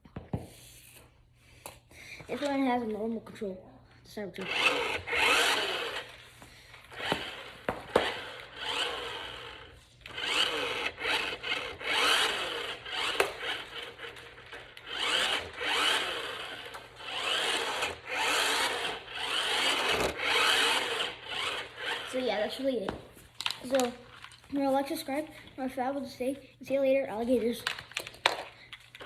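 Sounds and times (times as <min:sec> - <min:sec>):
toy electric motor whirring: 0:04.4 - 0:22.7
wheels rolling on floor: 0:04.4 - 0:24.5.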